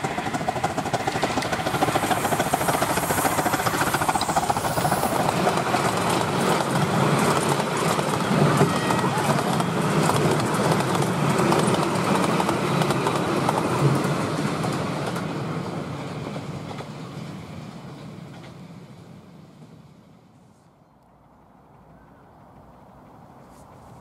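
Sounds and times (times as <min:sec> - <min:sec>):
train wheels clicking over rail joints: 0:00.0 - 0:18.7.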